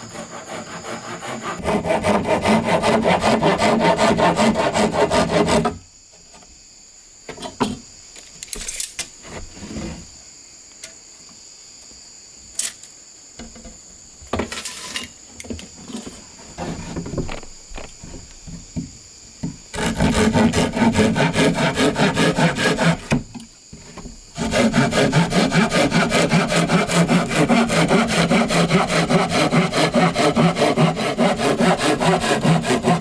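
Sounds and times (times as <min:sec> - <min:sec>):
hand saw cutting bamboo: 0:00.0 - 0:05.8, 0:19.7 - 0:23.3, 0:24.4 - 0:33.0
high insect drone: 0:00.0 - 0:33.0
bamboo knocks and scrapes: 0:07.3 - 0:10.1, 0:14.3 - 0:21.1.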